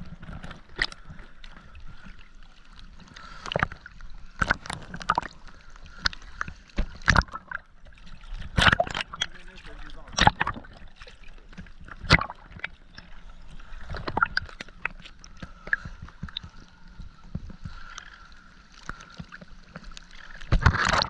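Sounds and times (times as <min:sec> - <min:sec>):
water gurgling and sloshing: 0:00.0 - 0:21.0
faint steady hum: 0:09.2 - 0:20.5.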